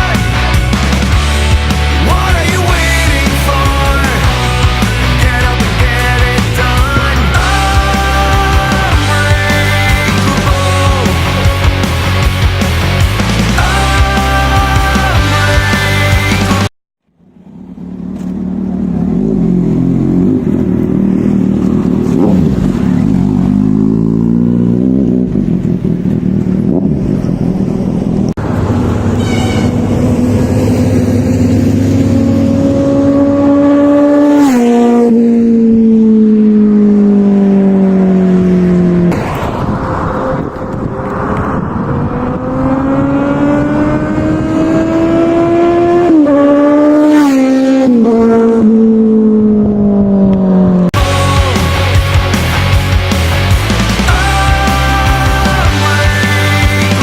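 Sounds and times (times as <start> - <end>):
motorcycle engine revving through gears: 17.1 - 51.0.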